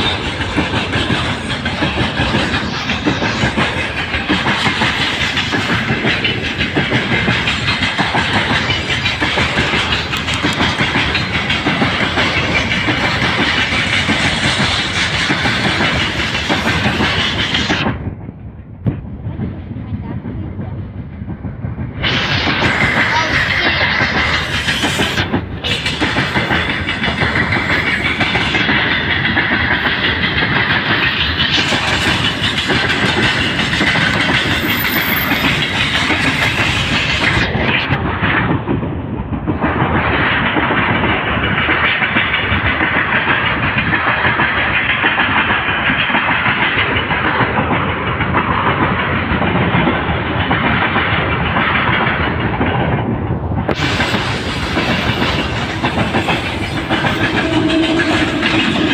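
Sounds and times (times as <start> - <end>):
freight train wheels clattering: 0.0 - 58.9.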